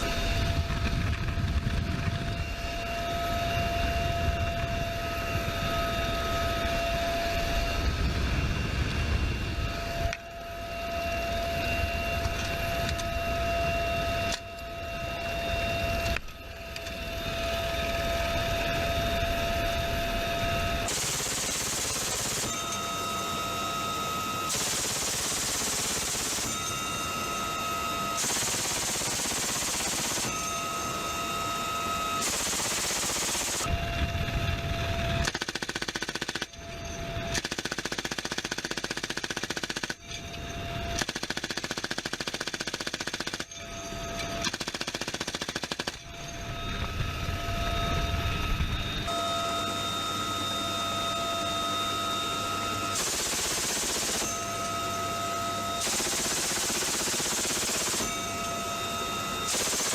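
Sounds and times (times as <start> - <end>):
steady high whine: 0.0 - 35.5, 45.7 - 59.9
minigun firing bursts: 20.9 - 22.9, 24.5 - 27.0, 28.1 - 30.5, 32.2 - 33.7, 35.2 - 36.5, 37.4 - 40.0, 41.0 - 43.4, 44.5 - 46.0, 52.9 - 54.6, 55.8 - 58.4, 59.5 - 59.9.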